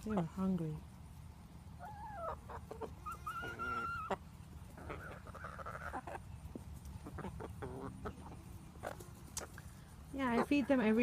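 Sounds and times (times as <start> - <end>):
hens making squeaky calls: 1.7 - 9.6.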